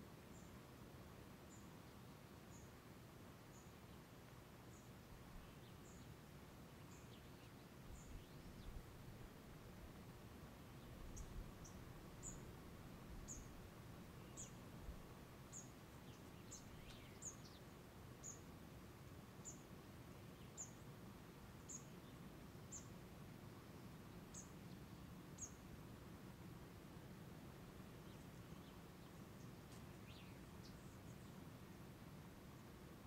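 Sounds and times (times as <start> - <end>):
faint outdoor hush: 0.0 - 33.0
bird chirping: 6.7 - 8.8, 10.8 - 14.7, 15.5 - 18.5, 20.3 - 20.9, 21.6 - 22.9, 24.3 - 25.6, 28.0 - 31.6.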